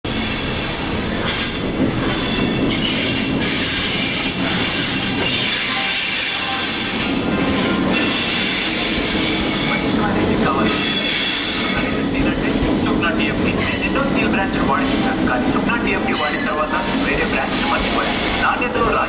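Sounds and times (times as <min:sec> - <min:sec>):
train wheels rumbling and clattering: 0:00.0 - 0:19.0
metallic brake squeal: 0:00.2 - 0:09.9, 0:10.7 - 0:11.9.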